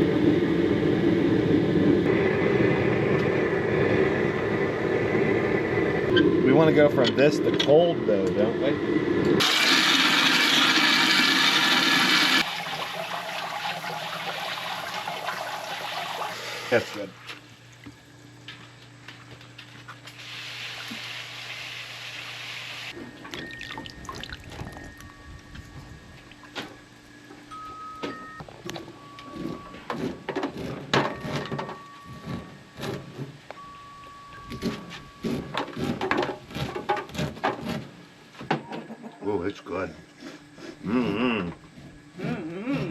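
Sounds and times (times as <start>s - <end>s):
water running into sink: 9.4s - 17.1s
faint background hum: 12.5s - 42.9s.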